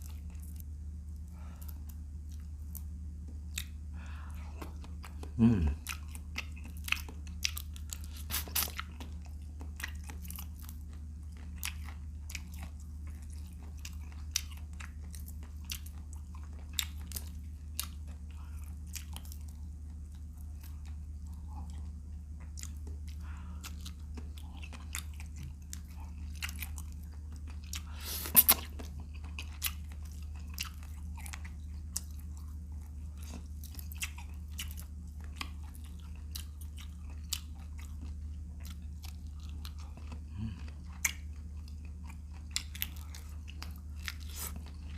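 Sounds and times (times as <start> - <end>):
chewing and biting shrimp: 0.0 - 44.9
steady low hum: 0.0 - 44.9.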